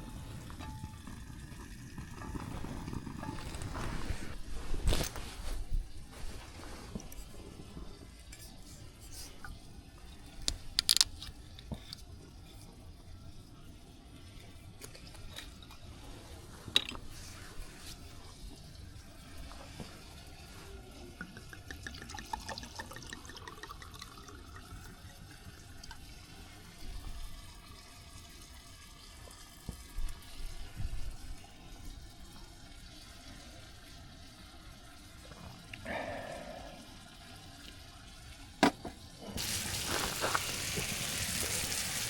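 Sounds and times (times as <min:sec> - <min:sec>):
water pouring into container: 0:00.0 - 0:08.4, 0:18.6 - 0:38.3, 0:39.4 - 0:42.0.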